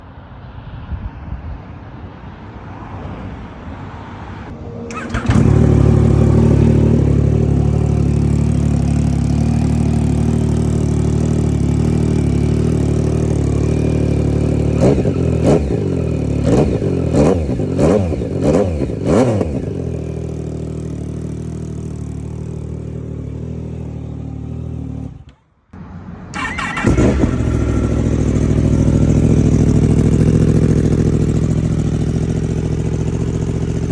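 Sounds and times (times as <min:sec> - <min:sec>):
motorcycle engine idling: 0:04.9 - 0:17.8, 0:18.7 - 0:25.3, 0:26.4 - 0:33.9
motorcycle engine revving: 0:04.9 - 0:25.4, 0:26.3 - 0:33.9
second motorcycle engine running: 0:04.9 - 0:25.4, 0:26.3 - 0:33.9.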